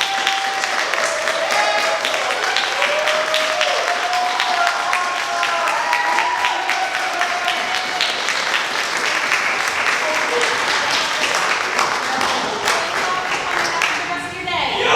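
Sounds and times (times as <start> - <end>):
audience applauding: 0.0 - 14.9
voices: 8.9 - 14.9.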